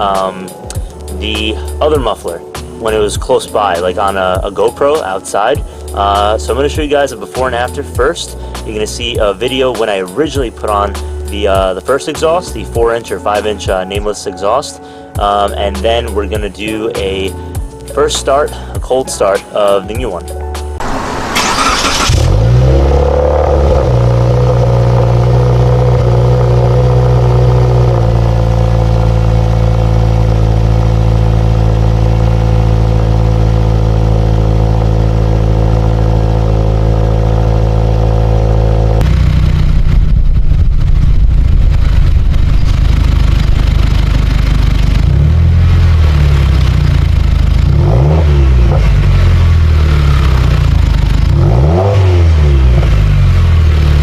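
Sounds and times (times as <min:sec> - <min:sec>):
car engine idling: 0:20.8 - 0:54.0
car engine revving: 0:20.8 - 0:54.0.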